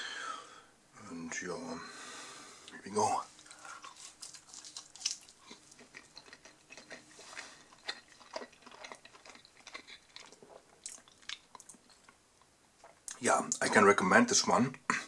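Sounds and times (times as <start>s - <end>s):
person chewing: 3.3s - 13.2s.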